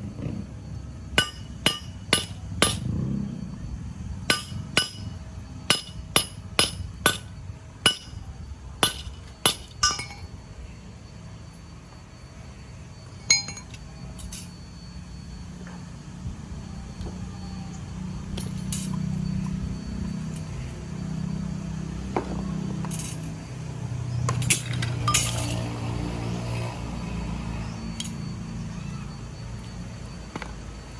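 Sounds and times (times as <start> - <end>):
low hum: 0.0 - 26.0
hammer tapping on metal: 1.2 - 2.9, 4.3 - 7.3, 7.9 - 8.2, 8.8 - 10.3.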